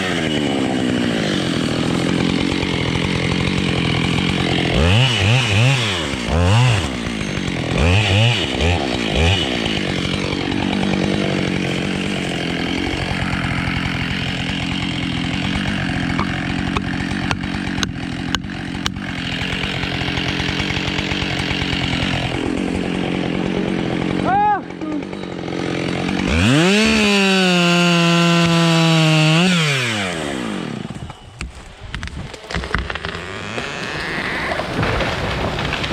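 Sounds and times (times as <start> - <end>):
chainsaw revving and cutting wood: 0.0 - 35.9.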